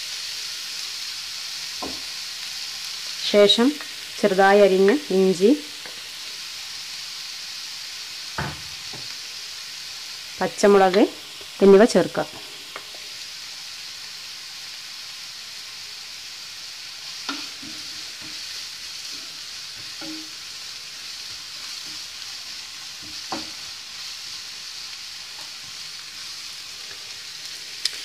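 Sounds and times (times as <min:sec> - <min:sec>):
vegetables sizzling in hot oil: 0:00.0 - 0:28.0.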